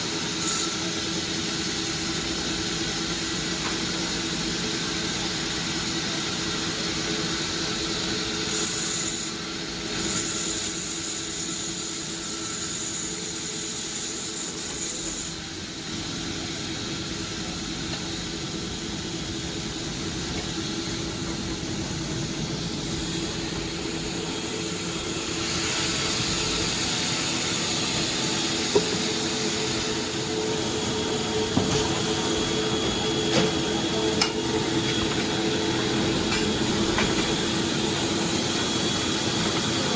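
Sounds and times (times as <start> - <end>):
sawmill machinery humming: 6.4 - 16.0.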